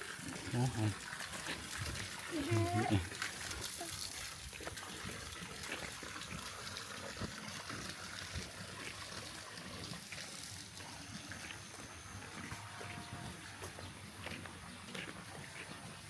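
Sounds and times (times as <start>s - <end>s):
water running and trickling: 0.0s - 16.0s
small splashy ticks: 1.1s - 11.7s.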